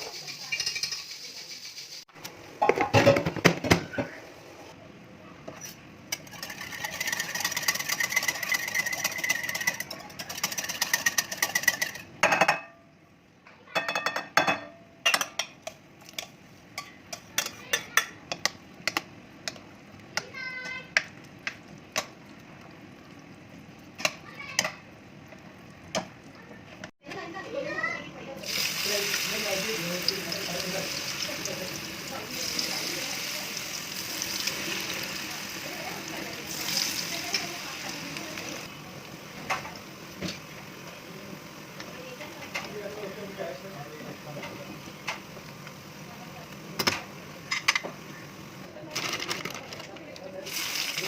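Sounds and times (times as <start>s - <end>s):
utensils clicking and knocking: 6.2s - 12.1s.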